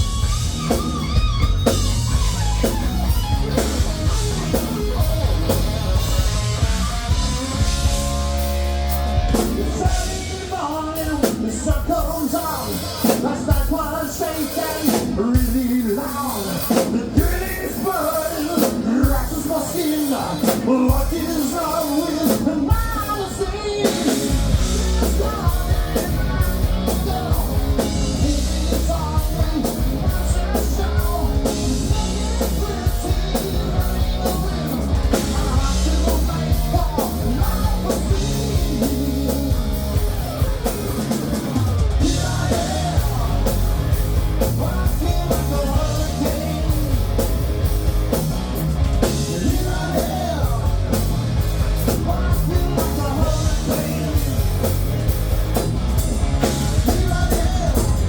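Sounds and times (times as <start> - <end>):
rock band playing: 0.0 - 58.0
person singing: 9.3 - 47.3, 49.0 - 54.8, 56.4 - 58.0.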